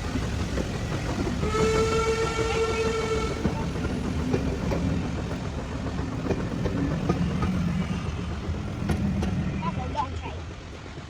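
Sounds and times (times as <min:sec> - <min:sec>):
wheels clacking over track: 0:00.0 - 0:10.1
train rumbling on rails: 0:00.0 - 0:11.0.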